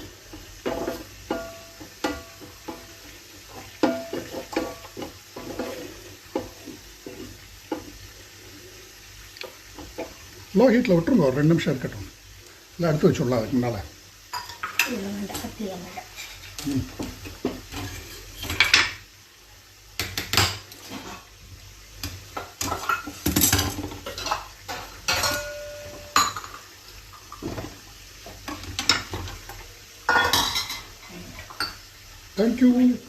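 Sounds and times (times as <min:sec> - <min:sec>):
kitchen utensils clattering: 0:00.2 - 0:07.8, 0:14.3 - 0:19.0, 0:22.4 - 0:27.8, 0:28.4 - 0:31.8.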